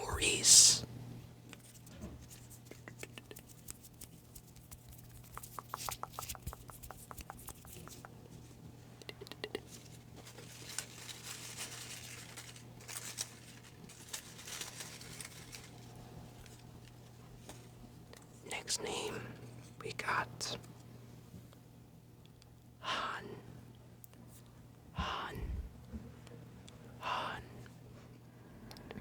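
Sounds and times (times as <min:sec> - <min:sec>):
small ticks: 0:02.7 - 0:08.2, 0:09.0 - 0:15.7
paper slips crinkling and rustling: 0:10.2 - 0:16.5.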